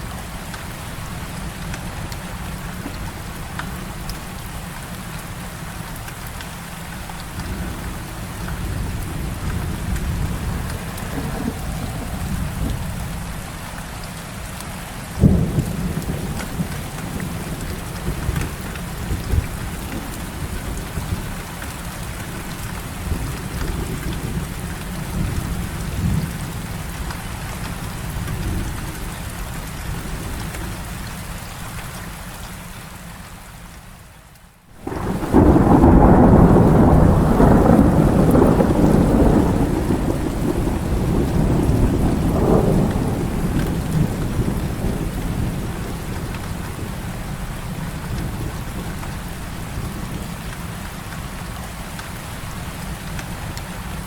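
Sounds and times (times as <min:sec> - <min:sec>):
heavy rain falling: 0:00.0 - 0:54.0
thunder rumbling: 0:07.2 - 0:13.5, 0:15.2 - 0:26.9, 0:34.8 - 0:50.4
sharp thunderclap: 0:09.7 - 0:13.0, 0:34.8 - 0:46.5.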